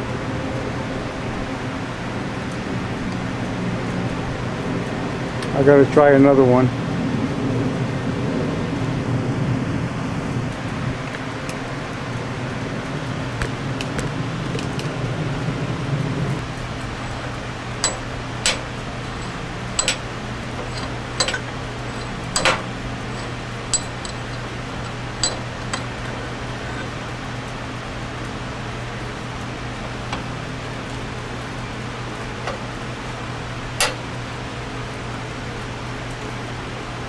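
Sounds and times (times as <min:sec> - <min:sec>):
steady low hum: 0:06.7 - 0:37.0
sharp metallic clinks: 0:16.8 - 0:26.9.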